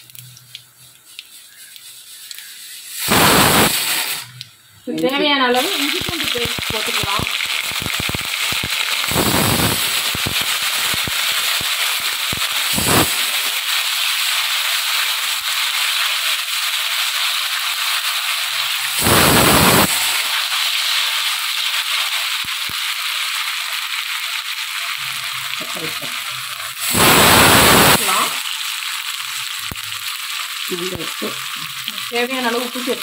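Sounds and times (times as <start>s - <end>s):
spices sizzling in hot oil: 0.0s - 33.0s
firecrackers banging: 3.0s - 4.4s, 5.2s - 15.5s, 18.8s - 21.8s, 25.6s - 28.5s.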